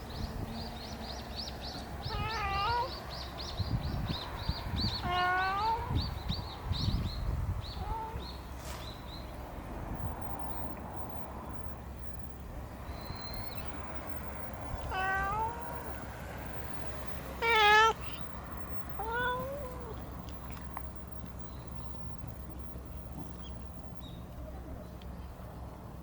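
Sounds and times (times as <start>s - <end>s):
cat meowing: 2.1s - 2.9s, 5.0s - 5.9s, 7.8s - 8.2s, 14.8s - 15.8s, 17.4s - 18.3s, 18.9s - 20.0s.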